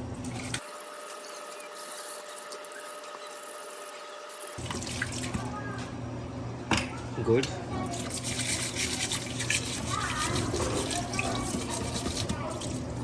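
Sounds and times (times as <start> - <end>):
water running: 0.2 - 5.6, 7.9 - 13.0
brushing machine parts: 7.9 - 12.9.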